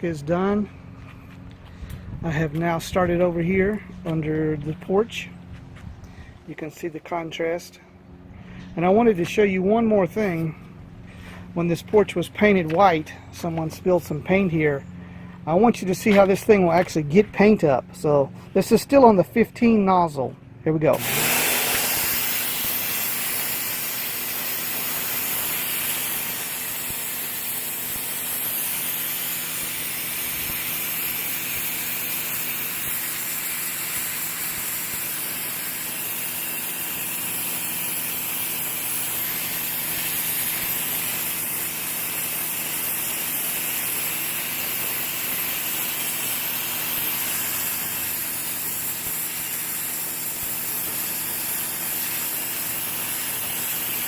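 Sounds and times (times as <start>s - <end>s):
electric motor pump humming: 20.8s - 54.0s
pressure washer jet hissing: 20.8s - 54.0s.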